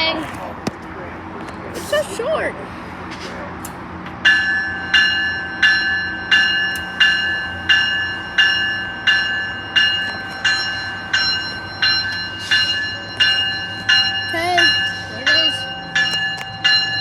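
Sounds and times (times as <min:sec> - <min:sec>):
locomotive bell ringing: 0:04.2 - 0:17.0.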